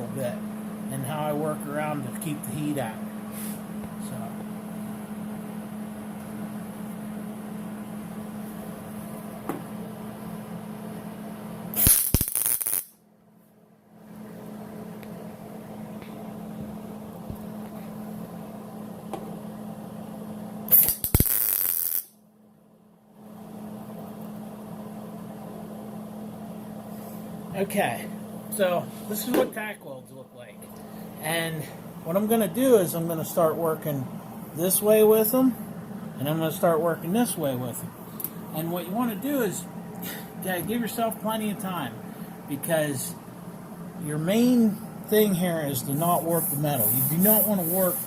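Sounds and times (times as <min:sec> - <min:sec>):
steady low hum: 0:00.0 - 0:48.0
welding arc crackling: 0:11.7 - 0:13.0, 0:20.7 - 0:22.2, 0:46.4 - 0:48.0.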